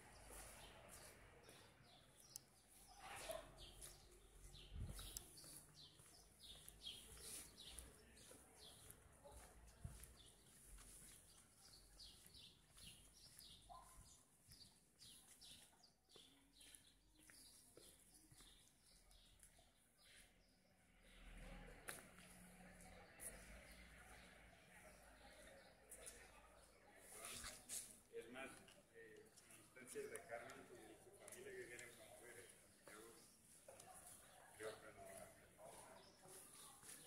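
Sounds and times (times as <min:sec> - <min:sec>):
city background: 0:00.0 - 0:37.0
bird chirping: 0:00.1 - 0:09.4, 0:10.4 - 0:20.5.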